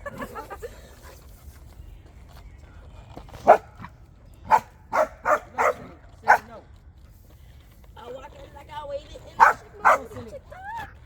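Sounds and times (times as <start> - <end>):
dog barking: 3.4 - 3.7, 4.5 - 6.6, 9.4 - 10.2.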